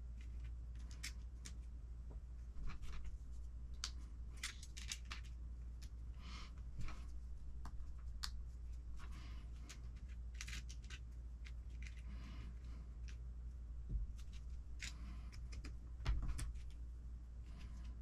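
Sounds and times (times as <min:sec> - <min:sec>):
low steady hum: 0:00.0 - 0:18.0
small plastic parts clicking: 0:03.7 - 0:06.0, 0:09.6 - 0:12.0.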